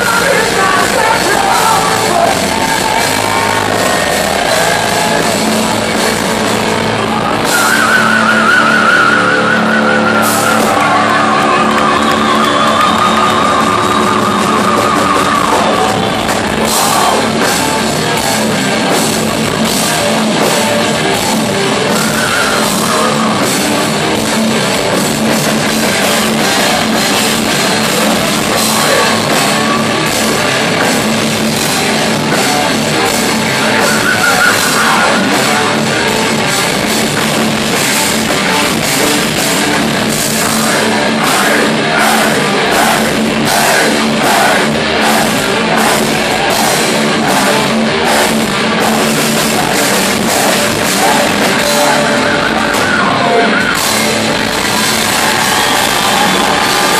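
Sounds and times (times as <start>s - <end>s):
distorted electric guitars: 0.0s - 56.9s
drum kit with cymbal beat: 13.7s - 53.1s, 53.7s - 56.9s.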